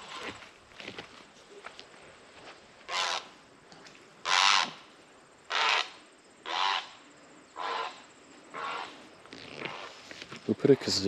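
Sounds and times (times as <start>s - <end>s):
bird harsh nasal calls: 6.5s - 7.0s, 7.6s - 10.0s.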